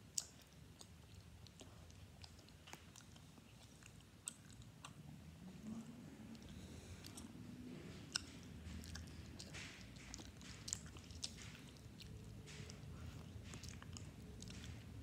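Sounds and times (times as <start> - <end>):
person chewing food: 0.0 - 15.0
mouth clicks and smacks: 8.1 - 15.0.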